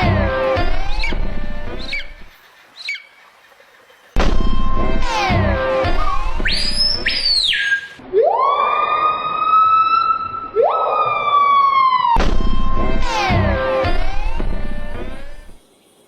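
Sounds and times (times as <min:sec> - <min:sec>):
bird screaming: 0:05.0 - 0:12.2.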